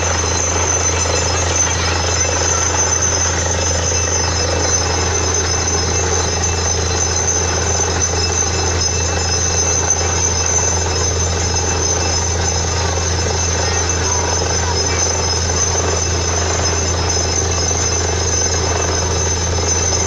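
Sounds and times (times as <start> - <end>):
high steady tones: 0.0 - 15.2
drilling rig engine drone: 0.0 - 20.0.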